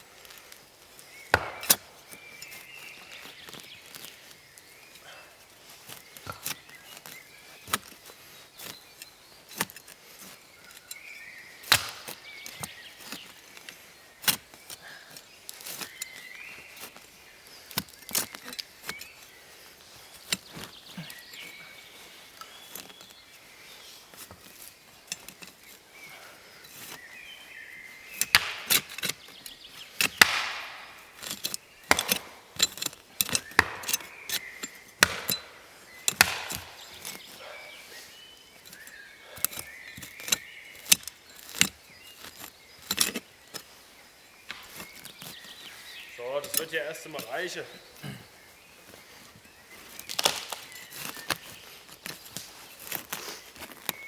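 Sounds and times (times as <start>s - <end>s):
hand tool striking: 1.2s - 4.1s, 8.6s - 13.4s, 28.1s - 37.7s, 38.6s - 43.8s, 44.5s - 45.5s.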